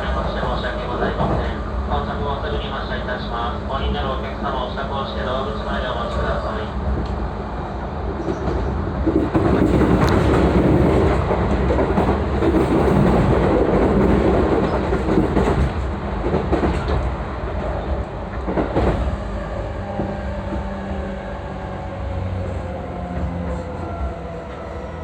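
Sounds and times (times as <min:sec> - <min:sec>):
clickety-clack of rail joints: 0:00.0 - 0:04.8, 0:05.7 - 0:25.0
train wheels rumbling on rails: 0:00.0 - 0:25.0.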